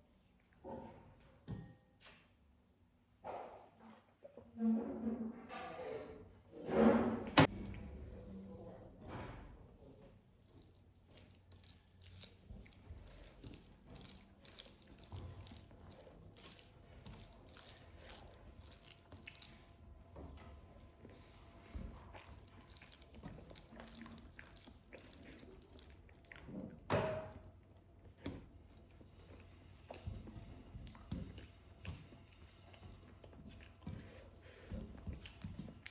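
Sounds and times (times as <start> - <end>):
wet chewing: 7.5 - 35.9.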